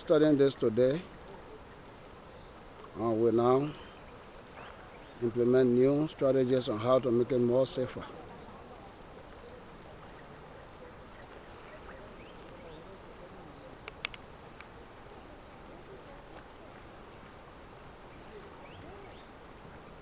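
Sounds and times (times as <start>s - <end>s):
faint outdoor background noise: 0.0s - 20.0s
sharp clicks: 13.8s - 14.7s.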